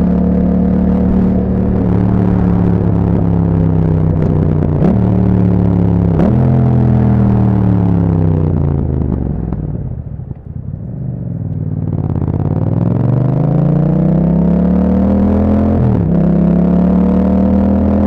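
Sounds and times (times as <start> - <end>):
exhaust pops: 0.0 - 11.5
motorcycle engine revving: 0.0 - 18.0.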